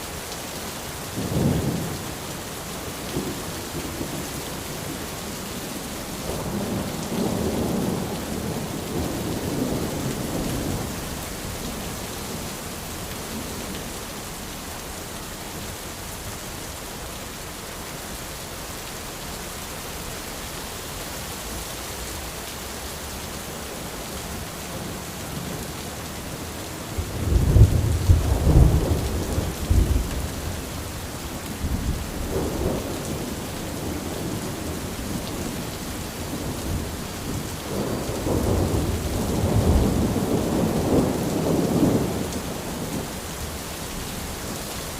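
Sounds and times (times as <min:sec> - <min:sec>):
rain on an umbrella: 0:00.0 - 0:44.9
thunder rumbling: 0:23.9 - 0:43.1.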